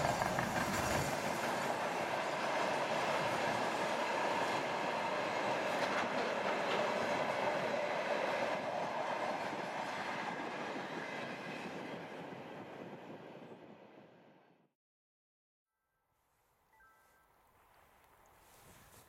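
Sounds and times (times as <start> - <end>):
train wheels on rails: 0.0 - 13.9.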